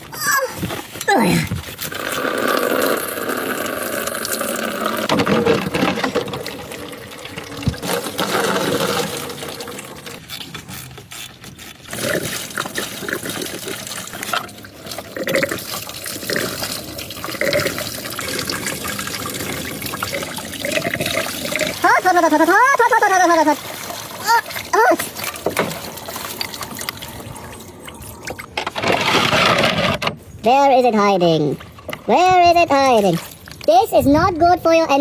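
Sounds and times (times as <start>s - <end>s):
liquid pouring and splashing: 1.7s - 10.4s, 11.6s - 28.5s, 32.9s - 33.7s.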